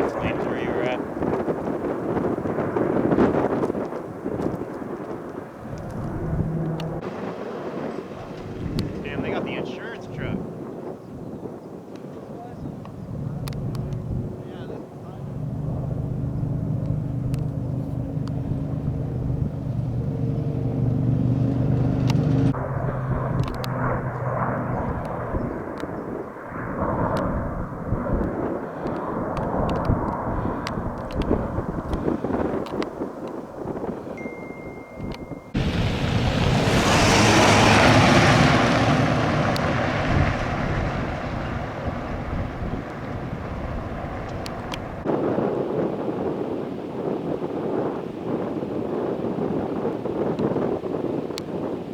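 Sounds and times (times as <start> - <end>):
vehicle engine humming: 0.0 - 10.4, 12.7 - 26.0, 29.8 - 45.1.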